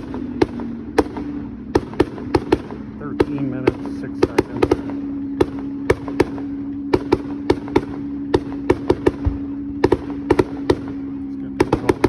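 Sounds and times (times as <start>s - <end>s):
steady low hum: 0.0s - 12.0s
fireworks bangs and cracks: 11.6s - 12.0s.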